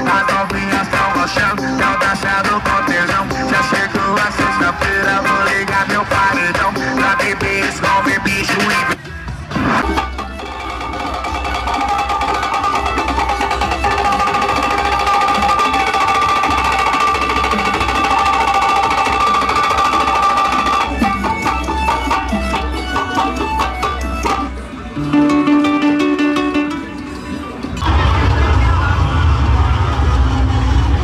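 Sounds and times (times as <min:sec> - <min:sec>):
funk music with bass beat: 0:00.0 - 0:10.4, 0:19.4 - 0:28.4
choppy percussion: 0:00.0 - 0:30.2
held synth chord: 0:24.1 - 0:28.0.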